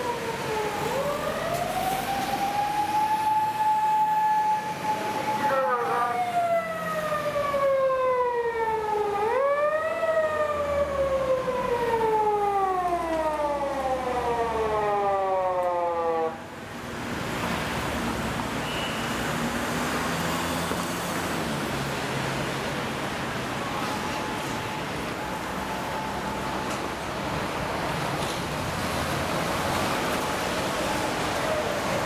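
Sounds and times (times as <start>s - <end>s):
police siren wailing: 0.0s - 16.5s, 23.4s - 32.0s
traffic and street noise: 0.0s - 32.0s.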